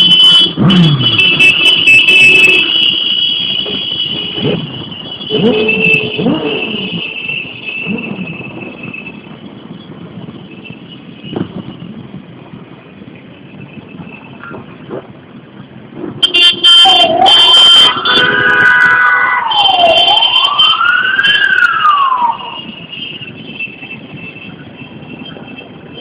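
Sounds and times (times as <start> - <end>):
emergency vehicle siren wailing: 0.0 - 9.5, 16.2 - 23.0
city street traffic: 0.0 - 26.0.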